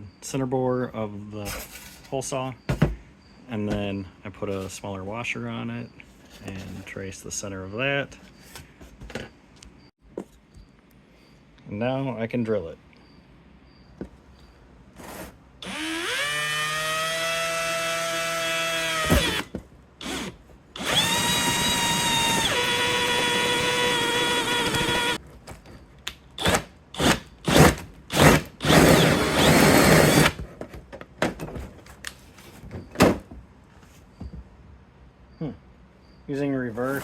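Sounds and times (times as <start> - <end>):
power drill drilling metal: 15.6 - 25.2, 26.4 - 30.4.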